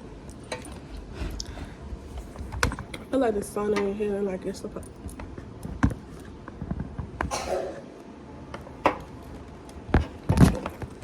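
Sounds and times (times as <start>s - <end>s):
knocks and bumps of handling: 0.5s - 4.0s, 8.5s - 11.0s.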